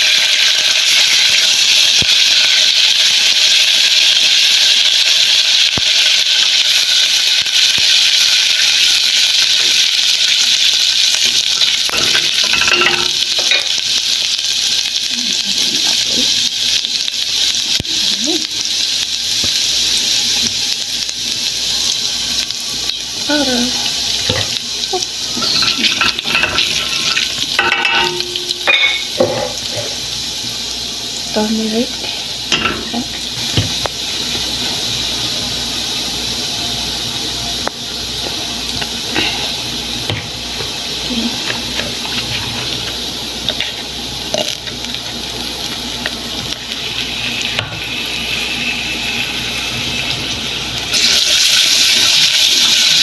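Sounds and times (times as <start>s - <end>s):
utensil stirring and clinking: 11.9s - 13.7s, 25.3s - 29.9s.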